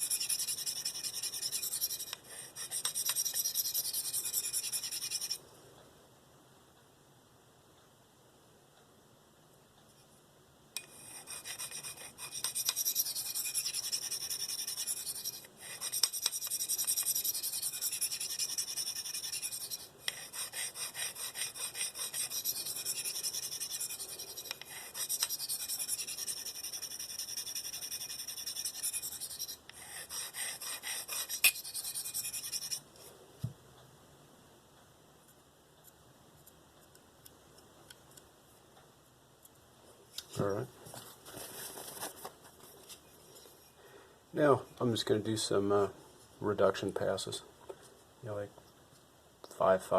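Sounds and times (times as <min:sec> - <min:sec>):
knife scraping on sharpening stone: 0:00.0 - 0:05.4, 0:10.8 - 0:32.8.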